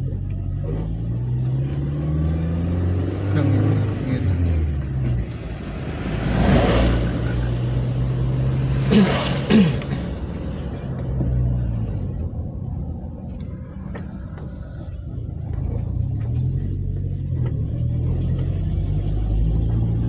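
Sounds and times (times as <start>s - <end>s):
engine and road noise hum: 0.0s - 20.0s.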